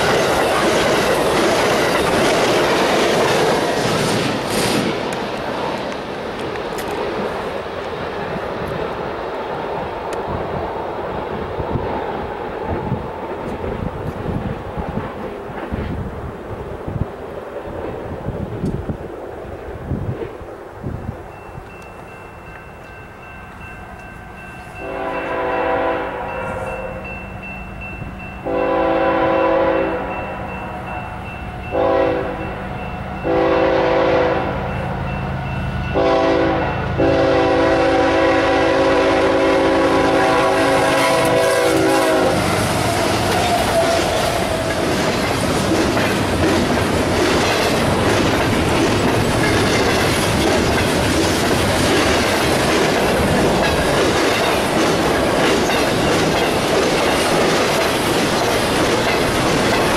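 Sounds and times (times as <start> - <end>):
wheels clicking on rails: 0.0 - 16.0, 41.2 - 59.9
train rumbling past: 0.0 - 59.9
locomotive air horn blasts: 24.8 - 27.1, 28.5 - 30.2, 31.7 - 32.4, 33.2 - 34.7, 36.0 - 42.8.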